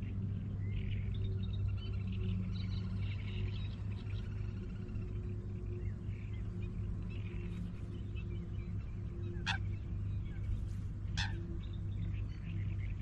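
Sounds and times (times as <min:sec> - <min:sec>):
birds chirping faintly: 0:00.0 - 0:13.0
steady low hum: 0:00.0 - 0:13.0
sharp bird calls: 0:09.0 - 0:13.0.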